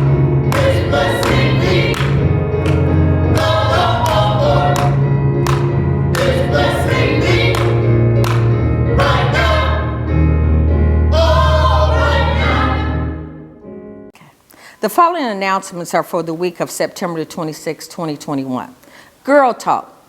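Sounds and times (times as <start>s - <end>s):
steady bass accompaniment: 0.0s - 13.4s
gospel choir singing: 0.0s - 13.6s.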